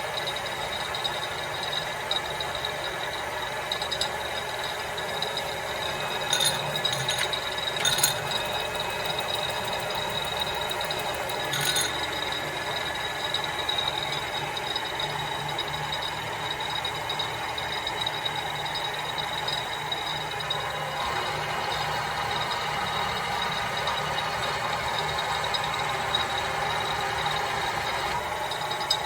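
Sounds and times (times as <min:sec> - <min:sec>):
milling machine whirring: 0:00.0 - 0:29.0
short rattles: 0:10.9 - 0:12.1.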